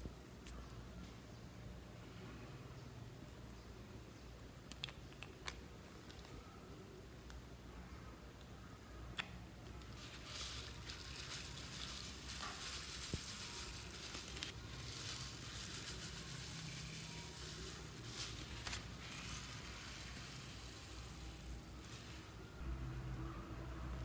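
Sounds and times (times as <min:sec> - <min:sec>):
slime squishing and crackling: 0:09.8 - 0:20.2.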